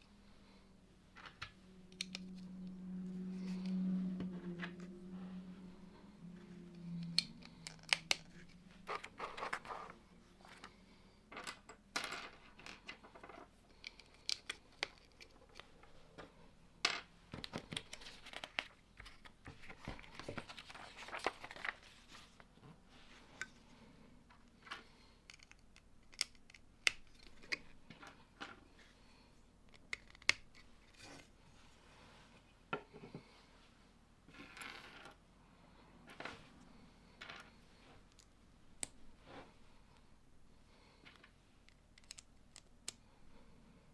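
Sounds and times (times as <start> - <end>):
plastic bricks clicking together: 25.3 - 27.6, 41.7 - 43.0.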